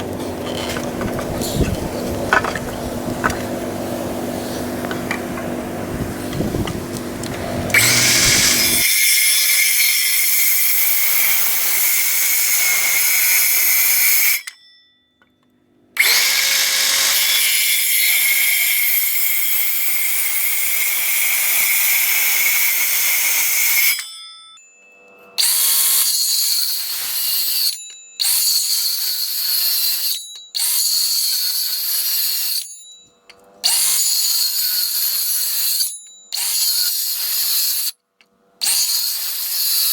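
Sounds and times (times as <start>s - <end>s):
low motor hum: 0.0s - 8.8s
power drill drilling into wood: 7.7s - 14.3s, 16.0s - 23.8s.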